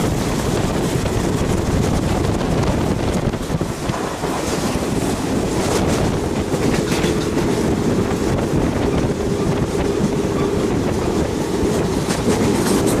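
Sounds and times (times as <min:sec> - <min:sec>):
train rumbling on rails: 0:00.0 - 0:13.0
faint rail clicks: 0:05.6 - 0:07.7.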